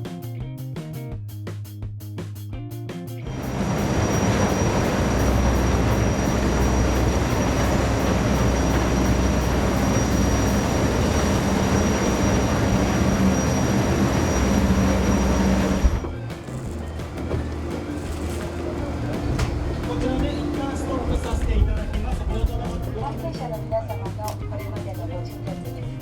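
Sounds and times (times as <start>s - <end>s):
high-pitched whine: 3.3s - 22.5s
gas turbine engines running: 3.3s - 24.7s.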